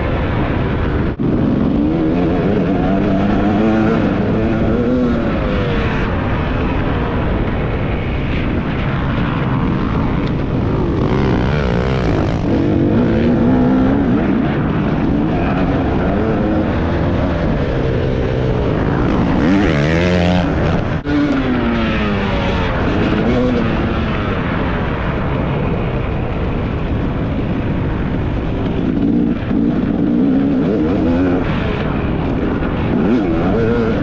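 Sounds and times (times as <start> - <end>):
dirt bike engine revving: 1.3 - 5.6, 9.7 - 23.8.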